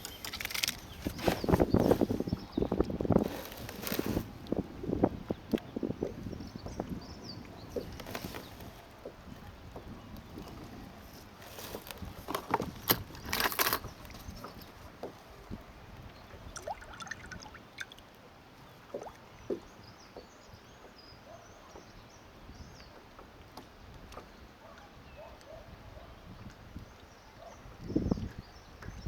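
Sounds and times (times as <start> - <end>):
small knocks and clicks: 0.0 - 1.6
knocks and splashes against kayak: 0.0 - 18.1, 18.8 - 21.0
water sloshing: 0.0 - 19.7.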